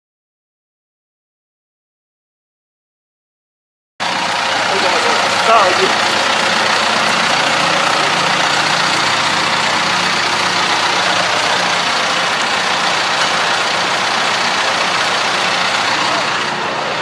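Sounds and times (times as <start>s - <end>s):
dense mechanical noise: 4.0s - 17.0s
diesel engine running: 4.0s - 17.0s.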